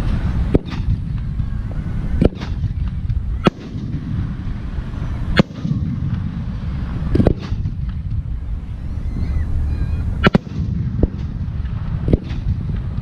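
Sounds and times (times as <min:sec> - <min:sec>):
distant fireworks rumble: 0:00.0 - 0:13.0
fireworks bangs: 0:00.0 - 0:13.0.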